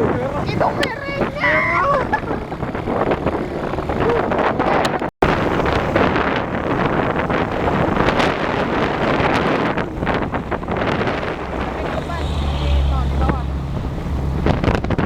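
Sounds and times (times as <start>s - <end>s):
wind buffeting microphone: 0.0s - 15.0s
moving passenger train: 5.2s - 15.0s.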